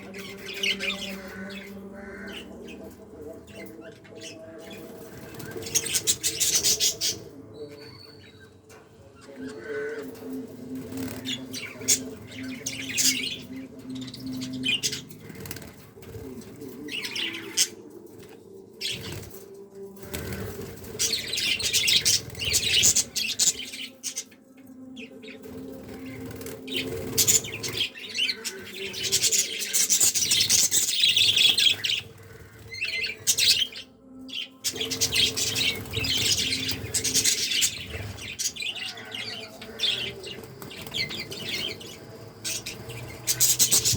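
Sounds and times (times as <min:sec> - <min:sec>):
budgies chirping and chattering: 0:00.0 - 0:43.9.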